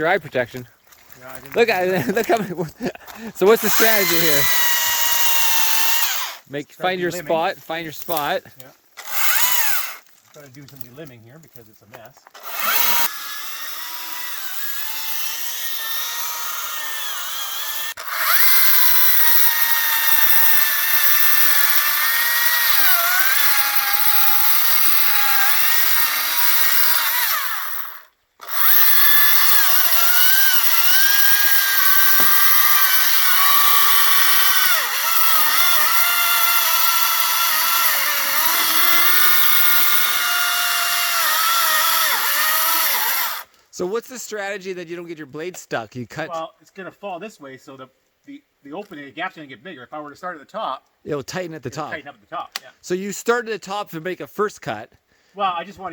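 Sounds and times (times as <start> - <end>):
electric chainsaw cutting wood: 3.4 - 6.4, 9.0 - 10.1, 12.4 - 43.5.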